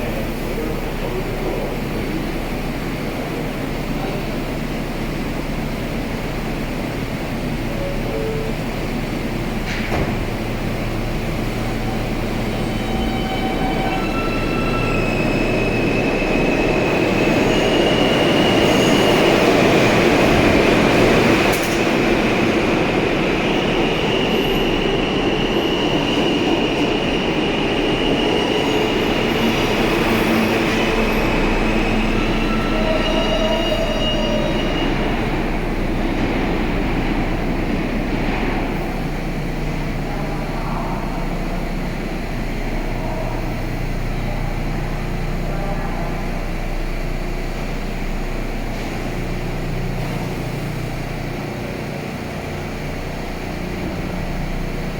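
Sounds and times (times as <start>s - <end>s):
subway train rumbling: 0.0s - 54.9s
wheels squealing against rails: 11.4s - 22.5s, 23.4s - 37.3s.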